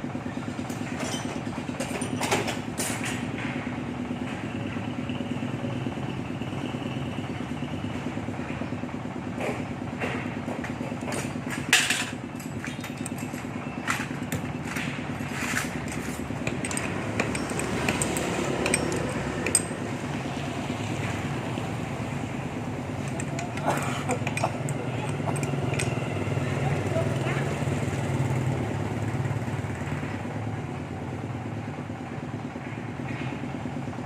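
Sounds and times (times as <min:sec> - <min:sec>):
machine hum: 0:12.0 - 0:28.1
metallic clicks and knocks: 0:15.8 - 0:20.3, 0:22.9 - 0:26.5.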